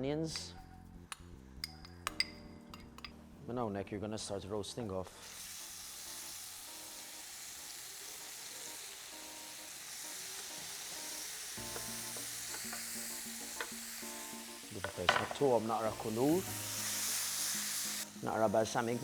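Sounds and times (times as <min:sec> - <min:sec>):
onions sizzling in a pan: 0:05.2 - 0:19.0.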